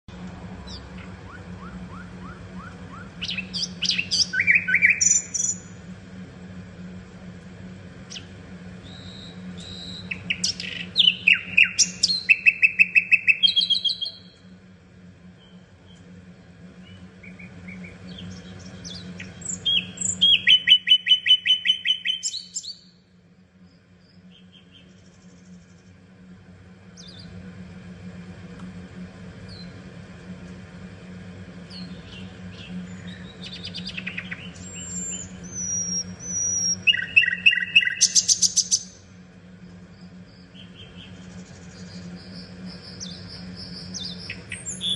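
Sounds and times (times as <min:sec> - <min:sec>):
low steady hum: 0:00.0 - 0:44.9
nightingale singing: 0:00.6 - 0:05.8, 0:08.1 - 0:14.4, 0:16.8 - 0:23.0, 0:31.7 - 0:39.0, 0:39.9 - 0:44.9.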